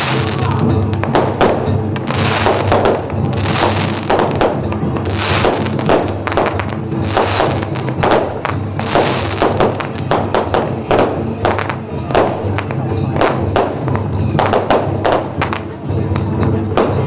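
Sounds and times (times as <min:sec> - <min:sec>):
firecrackers popping: 0:00.0 - 0:17.0
music: 0:00.0 - 0:17.0
falling whistles: 0:05.5 - 0:05.9, 0:06.8 - 0:07.9, 0:08.5 - 0:08.9, 0:09.7 - 0:12.6, 0:13.3 - 0:14.8.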